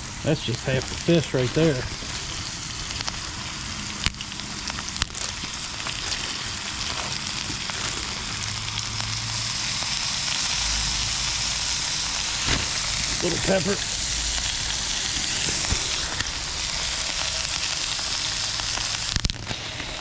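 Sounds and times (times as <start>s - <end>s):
fish frying in hot oil: 0.0s - 20.0s.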